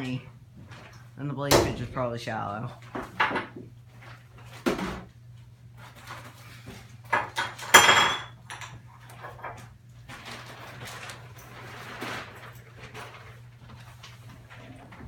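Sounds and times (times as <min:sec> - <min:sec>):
steady low hum: 0:00.0 - 0:07.2
dishes and utensils clattering: 0:07.1 - 0:09.7.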